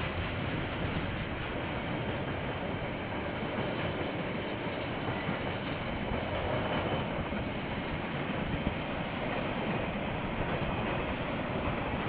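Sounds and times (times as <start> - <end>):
freight train wagons rolling: 0.0 - 12.0.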